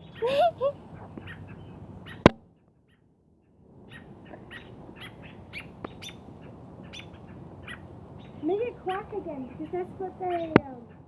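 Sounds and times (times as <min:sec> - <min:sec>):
duckling peeping: 0:00.0 - 0:11.0.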